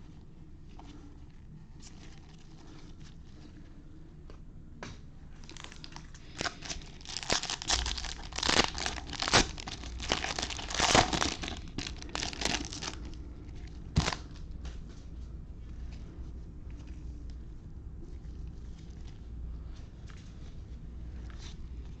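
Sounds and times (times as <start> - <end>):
foil wrapper tearing and crinkling: 5.4 - 13.2, 13.8 - 14.4.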